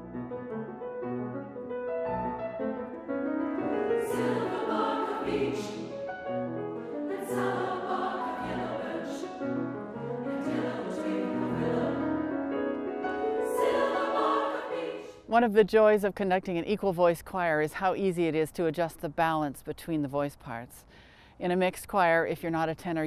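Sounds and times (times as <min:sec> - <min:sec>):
women's choir singing: 0:03.7 - 0:15.3.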